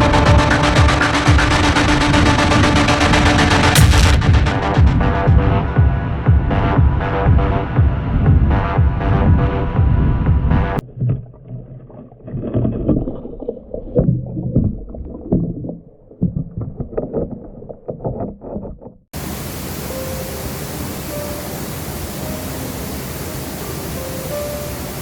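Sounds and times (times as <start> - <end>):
electronic music: 0.0 - 5.6
low thumps and knocks: 0.8 - 5.6
waterfall rushing: 19.2 - 25.0.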